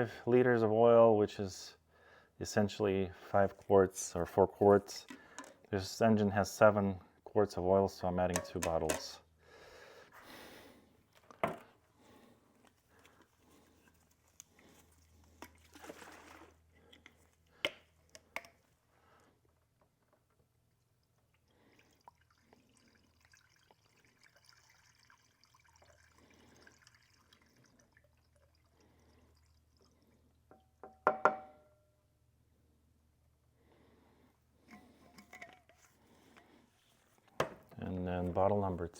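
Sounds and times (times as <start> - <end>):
liquid trickling and glugging: 13.8 - 17.4, 20.5 - 30.8.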